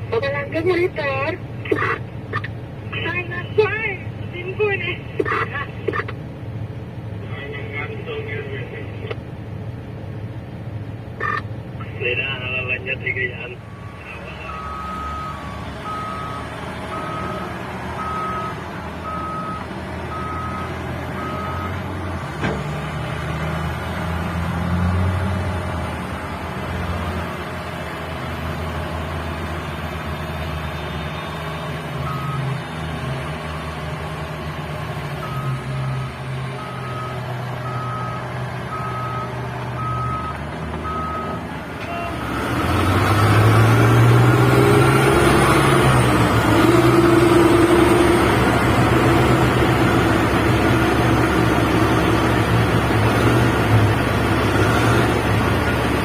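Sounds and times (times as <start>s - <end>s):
heavy diesel engines running: 0.0s - 56.0s
reversing alarm beeping: 13.7s - 21.8s, 32.0s - 32.5s, 35.2s - 42.3s.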